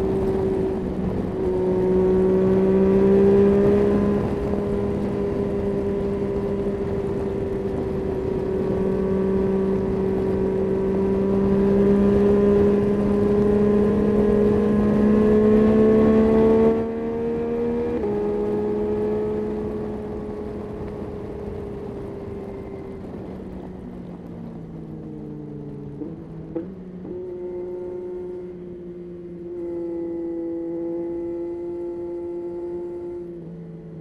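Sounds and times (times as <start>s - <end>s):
motorcycle engine revving: 0.0s - 23.6s, 24.8s - 34.0s.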